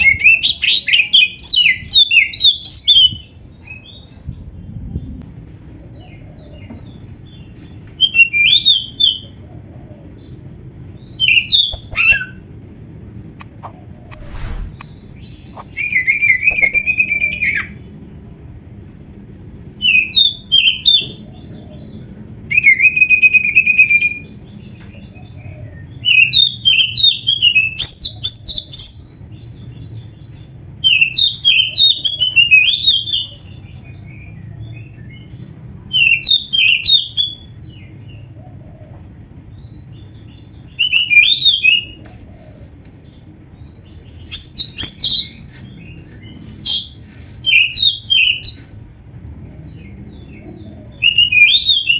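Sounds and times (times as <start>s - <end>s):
magpie-robin whistled song: 11.0s - 12.3s, 13.4s - 17.6s, 43.6s - 45.4s, 46.6s - 48.7s, 50.8s - 51.9s.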